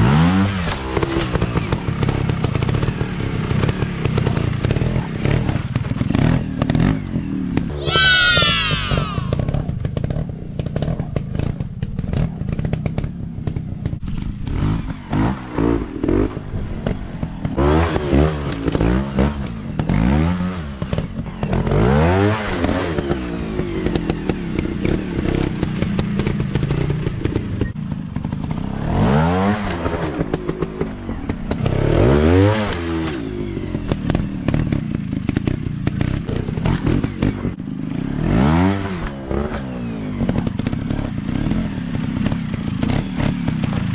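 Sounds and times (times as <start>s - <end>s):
dirt bike engines revving: 4.1s - 9.6s.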